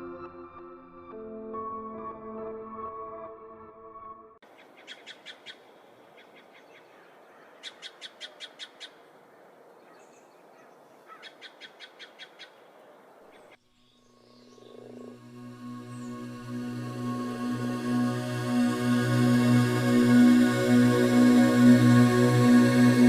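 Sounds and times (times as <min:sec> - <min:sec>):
soft ambient music: 0:00.0 - 0:04.4, 0:13.9 - 0:23.0
faint forest hiss: 0:04.4 - 0:23.0.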